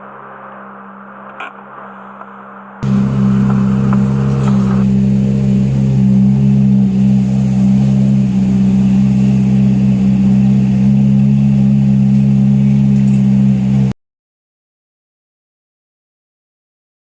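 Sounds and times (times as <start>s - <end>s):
car engine running steadily: 2.2s - 13.9s.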